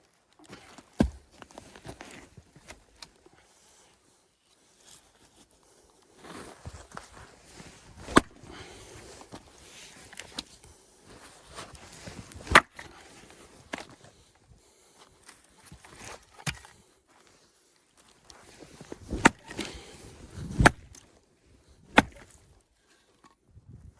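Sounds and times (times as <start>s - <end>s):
axe splitting firewood: 0.8s - 1.8s, 8.0s - 8.8s, 12.3s - 13.1s, 15.8s - 16.8s, 18.9s - 21.0s, 21.8s - 22.6s.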